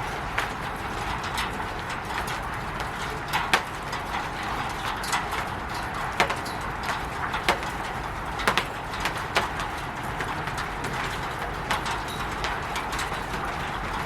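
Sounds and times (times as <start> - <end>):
rain on a roof: 0.0 - 14.0
drops tapping: 2.8 - 13.6.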